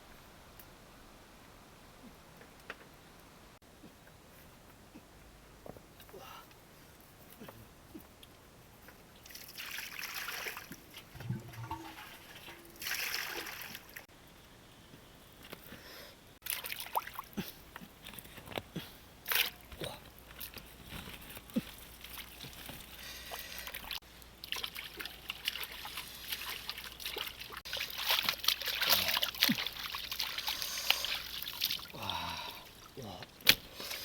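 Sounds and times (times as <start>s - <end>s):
small splashes and knocks: 9.2s - 14.1s, 16.4s - 18.6s, 19.2s - 32.0s
water sloshing and trickling: 9.2s - 14.1s, 16.4s - 18.3s, 19.2s - 34.0s.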